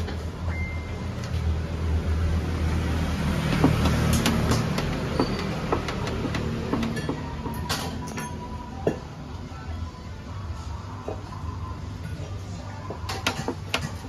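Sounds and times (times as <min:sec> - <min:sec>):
car engine idling: 0:02.5 - 0:07.6.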